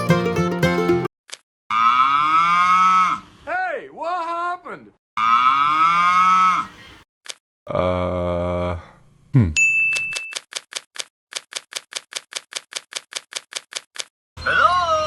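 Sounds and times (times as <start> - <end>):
bell-like ding: 9.6 - 10.3
rapid typewriter-like clicking: 10.3 - 14.1.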